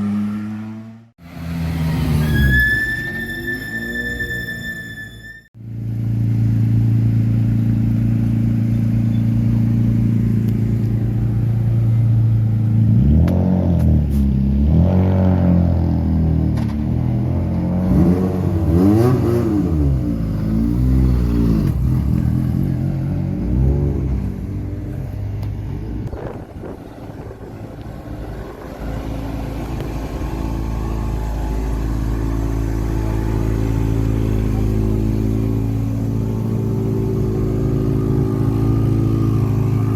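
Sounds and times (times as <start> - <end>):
rally car engine revving: 12.6 - 39.9.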